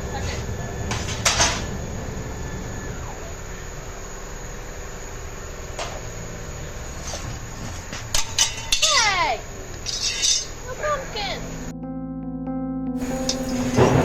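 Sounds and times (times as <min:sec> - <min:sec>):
shop machinery humming: 0:00.0 - 0:08.7, 0:13.0 - 0:14.0.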